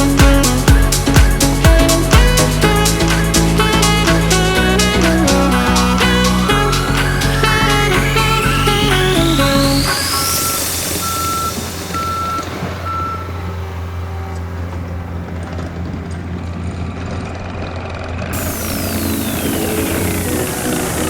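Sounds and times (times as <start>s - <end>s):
music: 0.0s - 12.8s, 18.4s - 21.0s
heavy construction machine running: 0.0s - 21.0s
backup alarm beeping: 9.9s - 13.3s.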